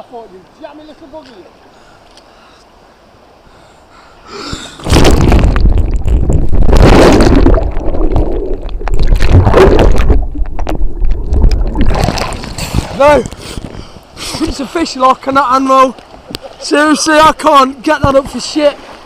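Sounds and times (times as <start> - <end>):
water splashing and churning: 2.7 - 19.0.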